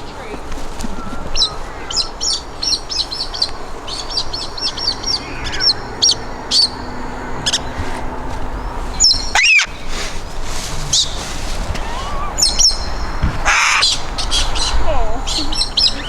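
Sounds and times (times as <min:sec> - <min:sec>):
birds chirping: 0:00.0 - 0:16.0
bird call sliding down in pitch: 0:10.9 - 0:16.0.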